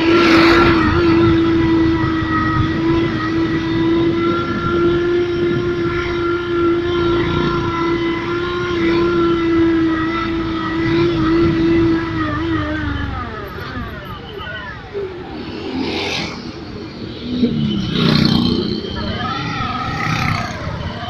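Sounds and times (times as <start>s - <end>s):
simulated racing engine note: 0.0s - 13.5s.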